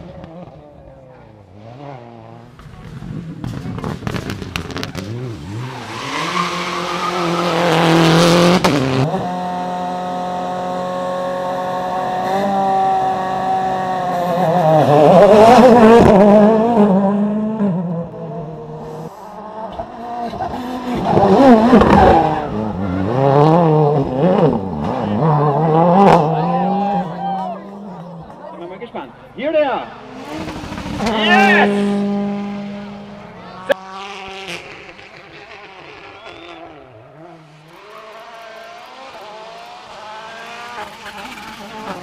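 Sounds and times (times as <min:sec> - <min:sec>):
rally car engines revving: 0:00.0 - 0:42.0.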